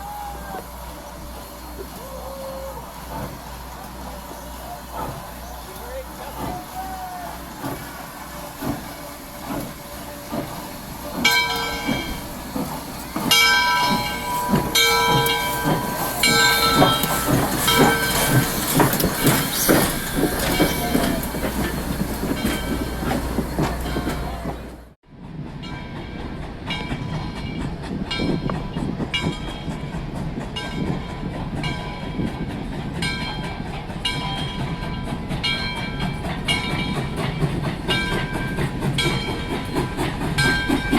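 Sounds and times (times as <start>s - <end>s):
train rumbling on rails: 0.0s - 40.9s.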